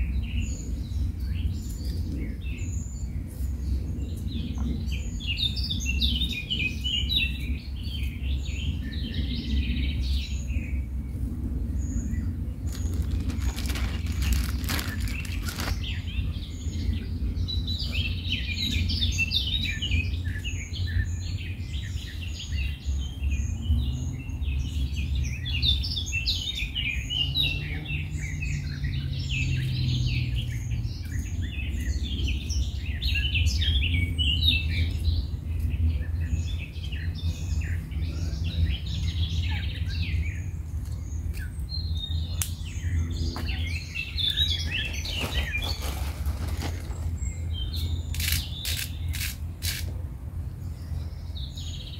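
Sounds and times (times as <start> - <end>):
steady low rumble: 0.0 - 26.0
birds chirping and singing: 0.0 - 51.9.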